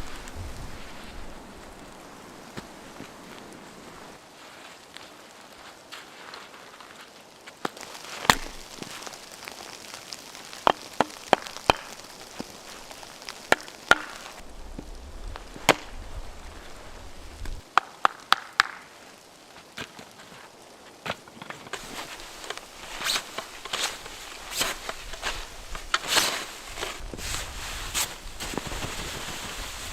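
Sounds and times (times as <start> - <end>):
wood being chopped: 7.6 - 8.7, 10.6 - 12.2, 13.4 - 14.3, 15.6 - 15.9, 17.7 - 18.8.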